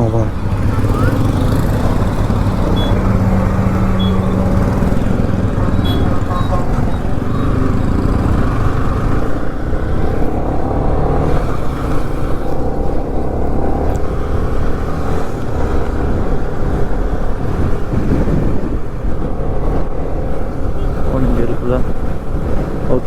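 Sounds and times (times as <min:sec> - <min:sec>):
motorcycle engine drone: 0:00.0 - 0:23.0
wind rush on microphone: 0:14.0 - 0:23.0.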